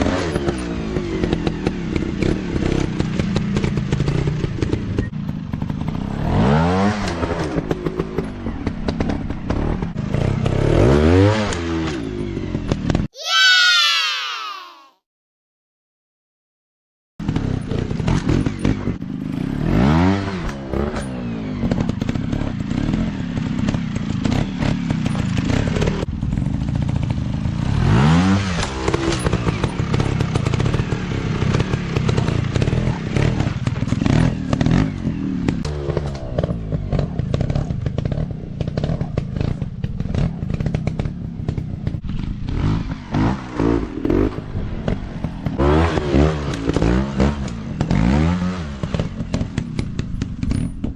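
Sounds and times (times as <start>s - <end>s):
dirt bike engine revving: 8.9s - 12.0s, 17.2s - 41.1s, 42.0s - 50.4s.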